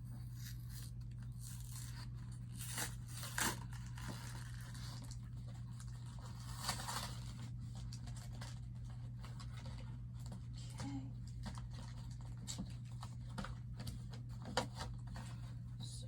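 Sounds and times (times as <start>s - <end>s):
packaging tearing and crinkling: 0.3s - 8.6s.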